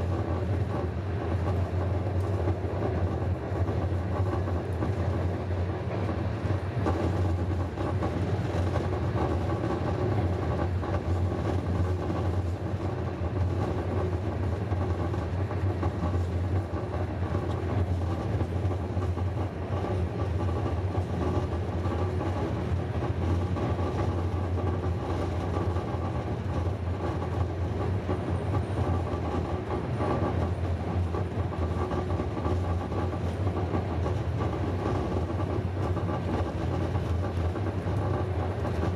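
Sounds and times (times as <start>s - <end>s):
train wheels rumbling and rattling: 0.0s - 38.9s.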